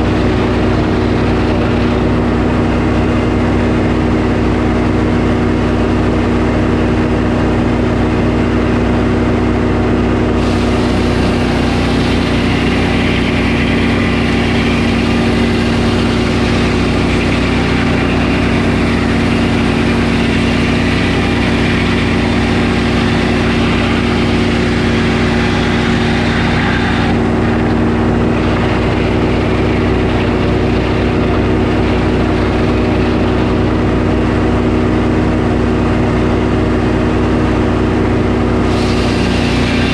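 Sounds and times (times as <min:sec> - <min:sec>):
saw cutting through log: 0:00.0 - 0:04.8, 0:10.3 - 0:34.8, 0:38.5 - 0:39.9
sawmill engine running: 0:00.0 - 0:39.9
bright hissing layer: 0:10.4 - 0:27.8, 0:38.7 - 0:39.9.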